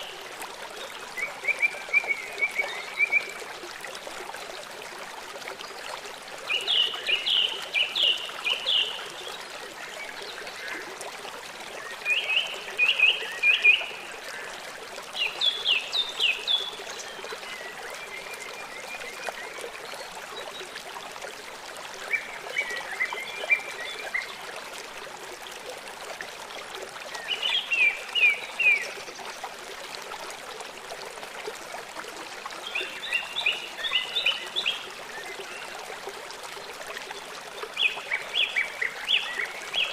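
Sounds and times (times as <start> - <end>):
flowing water hiss: 0.0 - 39.9
songbird singing: 6.5 - 10.8.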